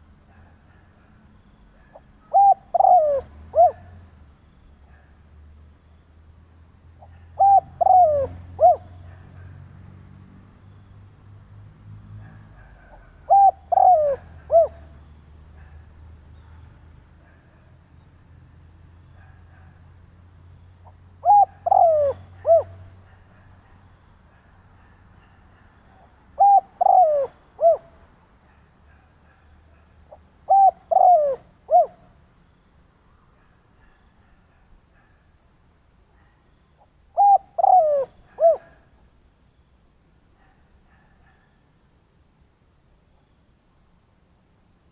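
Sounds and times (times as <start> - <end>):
dove cooing: 1.8 - 3.9, 7.0 - 9.0, 12.3 - 15.0, 21.2 - 22.9, 26.4 - 27.9, 30.5 - 32.0, 37.2 - 38.9.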